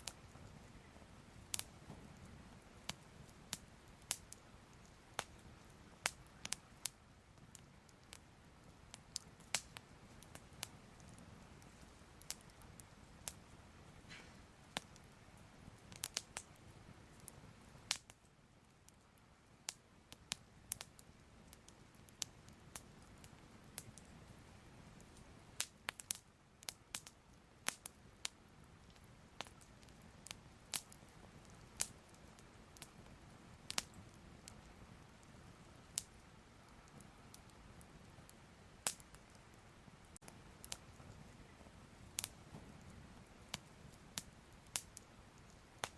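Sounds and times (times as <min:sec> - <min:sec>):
faint low hiss: 0:00.0 - 0:45.9
fire crackling and popping: 0:00.0 - 0:45.9.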